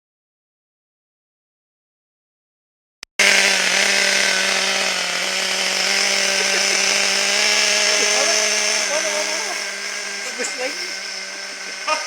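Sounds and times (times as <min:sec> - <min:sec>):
rc helicopter rotors buzzing: 0:03.2 - 0:12.0.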